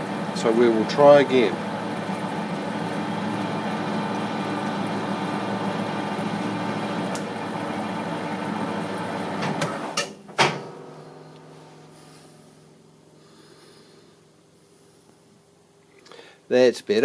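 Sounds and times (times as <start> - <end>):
loud clunk: 9.4 - 10.9.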